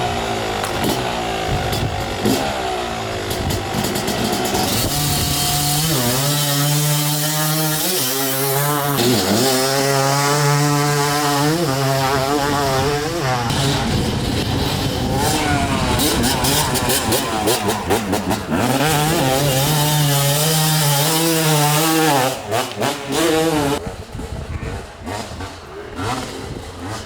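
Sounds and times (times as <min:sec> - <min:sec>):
motocross engine revving: 0:00.0 - 0:27.0.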